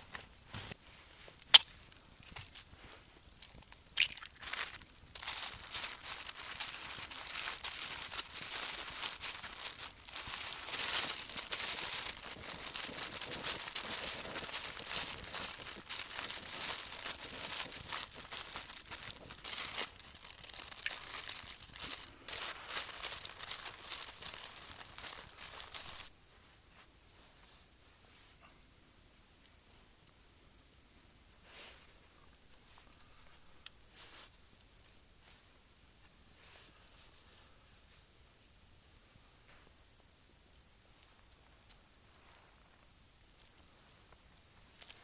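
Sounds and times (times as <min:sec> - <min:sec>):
crinkling and rustling: 0:00.0 - 0:26.2, 0:40.8 - 0:45.0.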